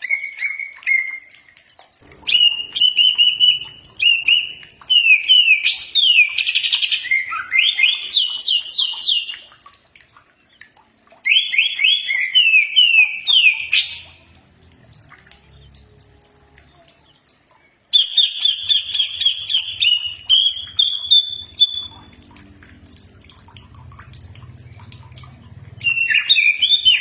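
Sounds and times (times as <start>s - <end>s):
bird singing whistled notes: 2.2s - 9.2s, 18.0s - 22.1s.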